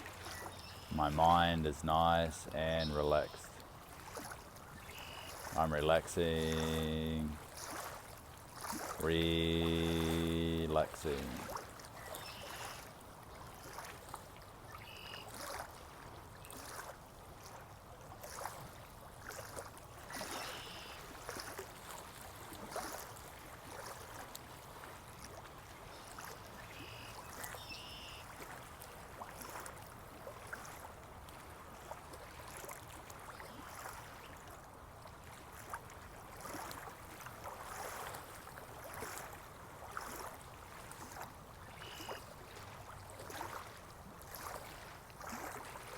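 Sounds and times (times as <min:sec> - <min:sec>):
small water splashes: 0:00.0 - 0:45.9
stream water trickling: 0:00.0 - 0:45.9.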